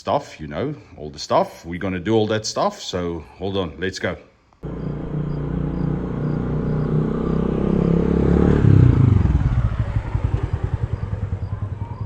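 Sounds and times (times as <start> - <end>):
motor vehicle engine revving: 4.6 - 12.0.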